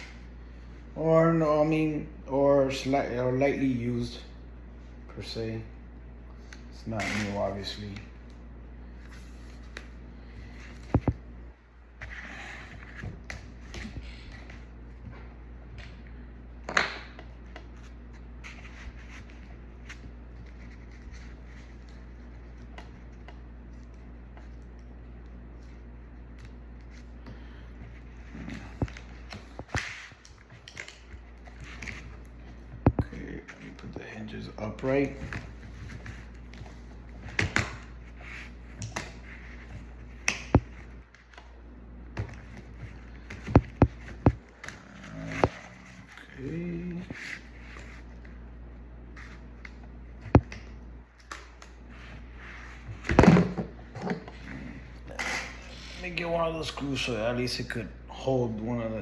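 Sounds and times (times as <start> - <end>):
steady low hum: 0.0 - 59.0
taps and rustles of tools: 28.7 - 34.0, 42.2 - 45.6.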